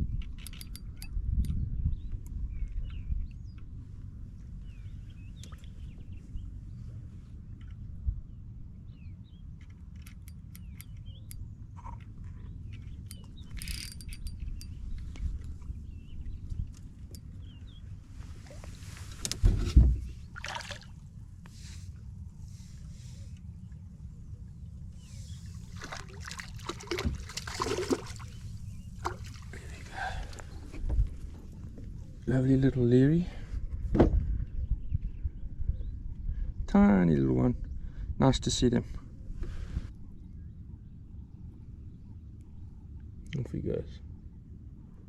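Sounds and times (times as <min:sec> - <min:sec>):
small birds chirping: 0:00.0 - 0:07.7, 0:08.3 - 0:19.1, 0:21.5 - 0:30.8
steady low rumble: 0:00.0 - 0:45.0
sharp clicks: 0:00.2 - 0:01.6
knocks and clatter in boat: 0:18.5 - 0:20.7, 0:25.8 - 0:28.4, 0:33.7 - 0:34.3
water splashing: 0:20.3 - 0:21.0, 0:25.6 - 0:29.9.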